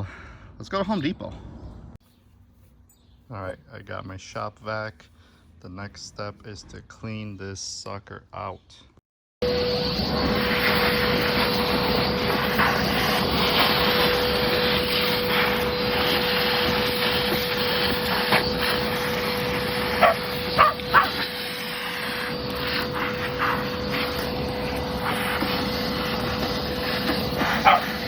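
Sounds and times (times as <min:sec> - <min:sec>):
shop vac motor whine: 0:09.4 - 0:28.0.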